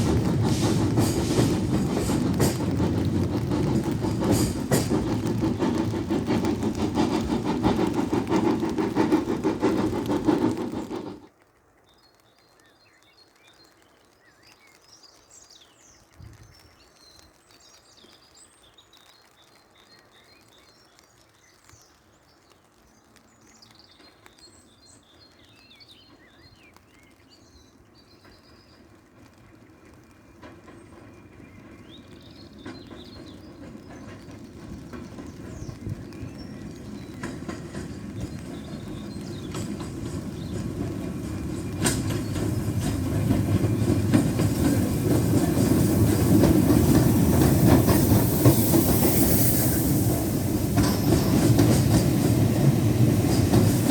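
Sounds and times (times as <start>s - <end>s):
birds chirping: 0.0s - 11.2s, 26.1s - 53.9s
low rumble of approaching train: 0.0s - 11.3s, 24.0s - 53.9s
steam train passing: 0.0s - 11.3s, 25.2s - 53.9s.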